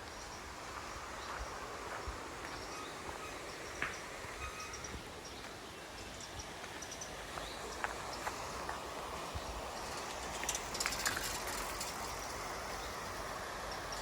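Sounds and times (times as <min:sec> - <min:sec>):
steady background hiss: 0:00.0 - 0:14.0
faint bird chirps: 0:02.4 - 0:08.3.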